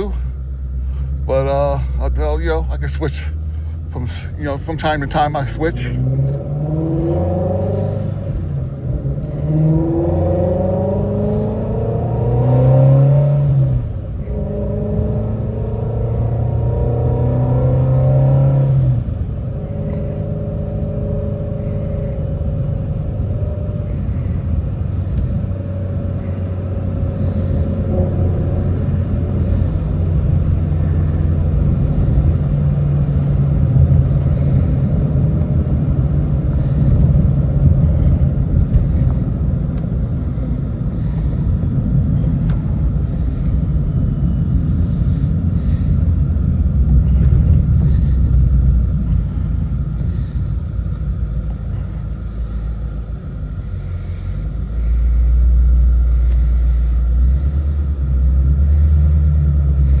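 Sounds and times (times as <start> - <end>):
car engine rumble from cabin: 0.0 - 60.0.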